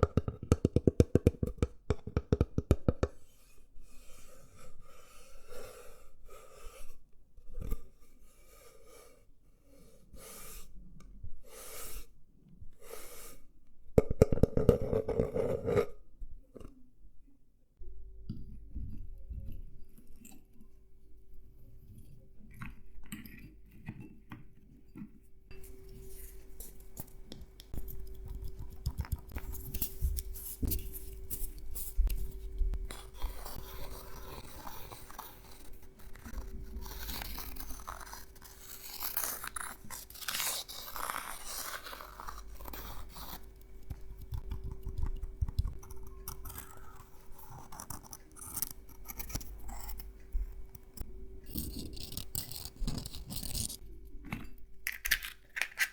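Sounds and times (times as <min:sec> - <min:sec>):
nut shells clicking and rattling: 0:54.8 - 0:55.9.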